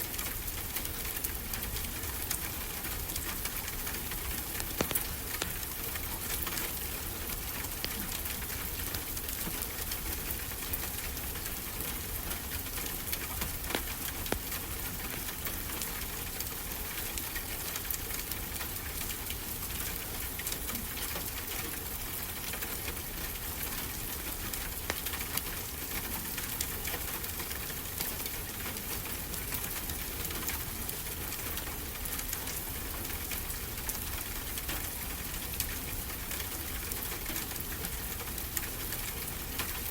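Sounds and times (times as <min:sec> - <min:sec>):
fire crackling and popping: 0:02.0 - 0:18.0, 0:24.0 - 0:28.9.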